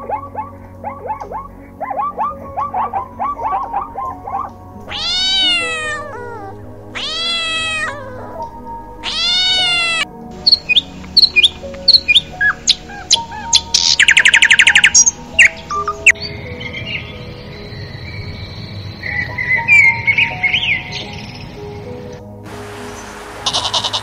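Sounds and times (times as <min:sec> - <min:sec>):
songbird chirping and trilling: 0:00.0 - 0:22.2
soft background music: 0:00.0 - 0:24.0
cat meowing: 0:04.9 - 0:10.1.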